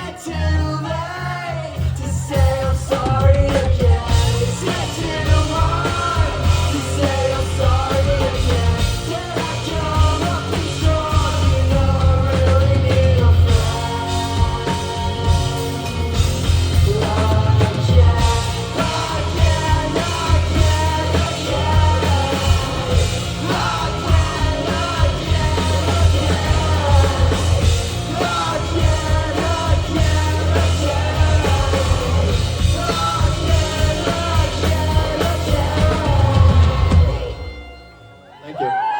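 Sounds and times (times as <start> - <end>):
live rock band playing: 0.0 - 38.9
singer's vocals: 0.0 - 38.9.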